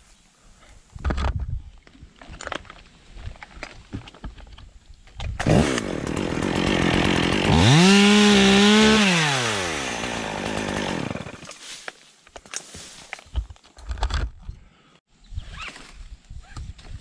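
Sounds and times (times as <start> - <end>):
chainsaw revving: 5.4 - 11.5.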